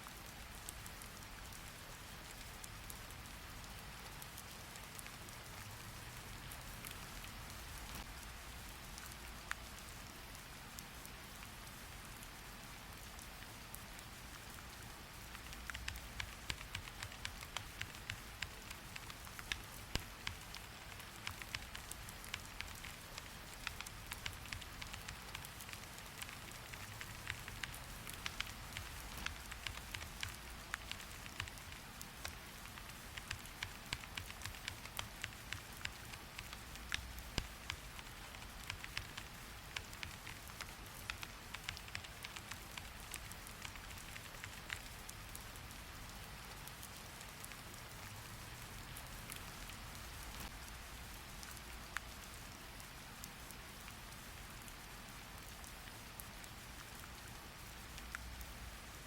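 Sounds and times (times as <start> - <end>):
rain hiss: 0.0 - 59.0
sharp clicks: 15.5 - 44.9.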